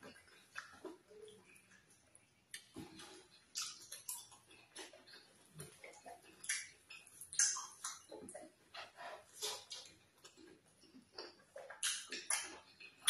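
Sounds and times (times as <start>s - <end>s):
lip smacks: 0.0s - 13.0s
wet chewing: 0.0s - 13.0s
mouth clicks: 5.8s - 8.4s.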